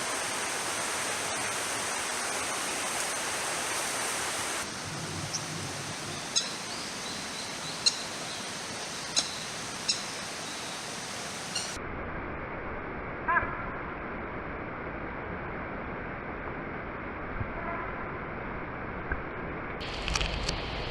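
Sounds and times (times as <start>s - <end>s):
running water rushing: 0.0s - 11.8s
sharp high bird calls: 6.1s - 10.9s, 11.5s - 11.8s.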